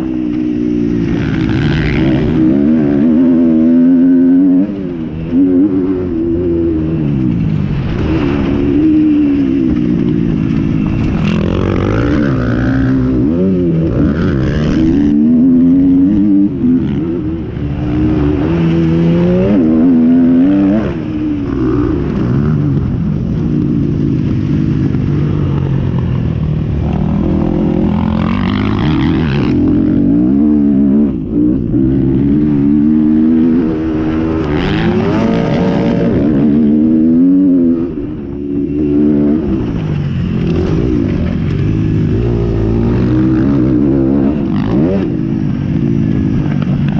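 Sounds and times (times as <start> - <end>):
motocross bikes revving: 0.0 - 46.9.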